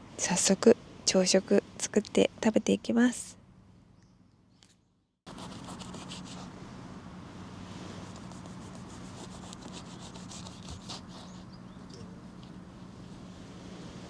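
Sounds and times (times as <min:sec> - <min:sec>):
scratchy rubbing strokes: 0:05.3 - 0:06.5, 0:07.8 - 0:11.6
steady low hum: 0:05.3 - 0:14.0.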